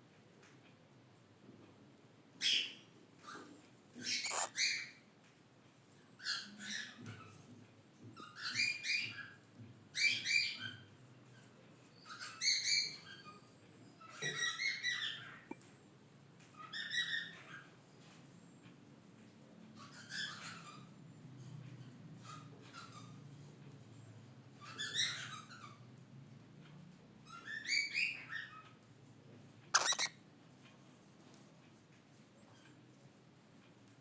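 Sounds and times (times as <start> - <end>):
cockatiel chirping: 4.0 - 5.0, 12.0 - 13.3, 29.8 - 30.2.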